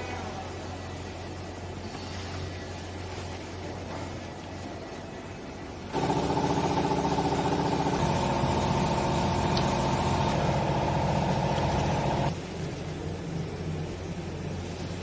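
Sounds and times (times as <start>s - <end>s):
hydraulic pump hum: 5.8s - 12.4s.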